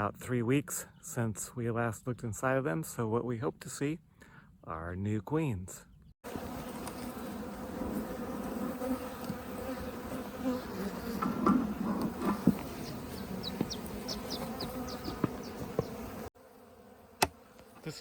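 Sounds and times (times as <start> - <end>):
honeybees buzzing: 6.2 - 18.0.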